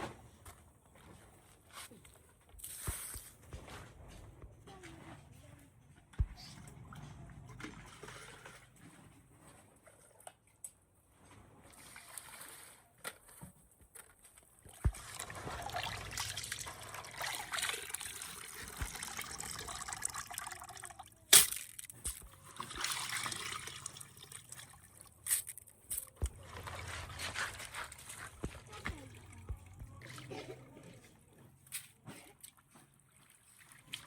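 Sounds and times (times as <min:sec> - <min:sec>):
water trickling and splashing: 0:14.6 - 0:21.3, 0:22.2 - 0:34.0.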